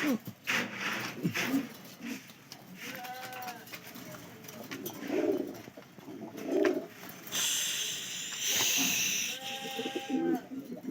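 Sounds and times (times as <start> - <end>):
pigeon cooing: 5.1 - 10.9
steady hiss: 7.3 - 10.2.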